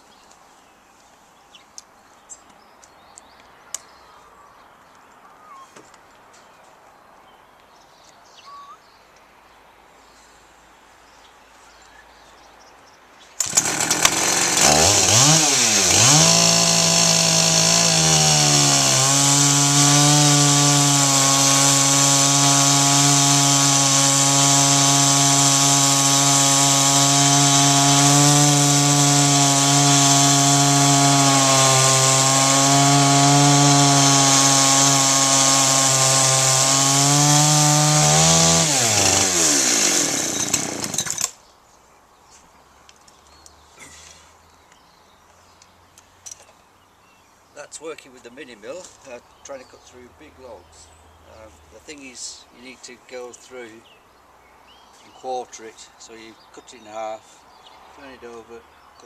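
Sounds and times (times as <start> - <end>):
chainsaw cutting a log: 13.4 - 41.4.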